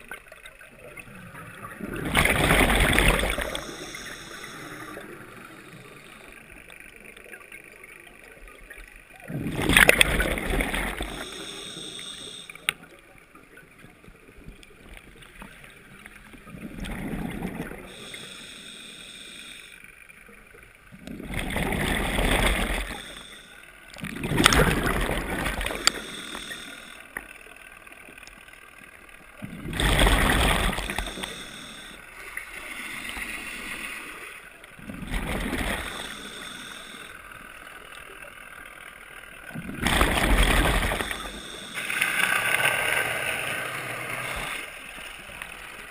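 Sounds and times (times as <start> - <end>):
diver breathing through regulator: 2.2 - 6.5, 10.4 - 12.7, 17.7 - 19.9, 21.3 - 23.7, 24.4 - 27.2, 29.7 - 37.4, 39.8 - 45.0
bubbles gurgling underwater: 9.2 - 11.2, 24.0 - 25.9, 29.4 - 31.2.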